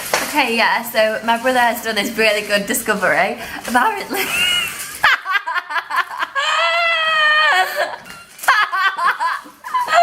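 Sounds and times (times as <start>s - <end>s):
high-pitched laughter: 4.2s - 10.0s.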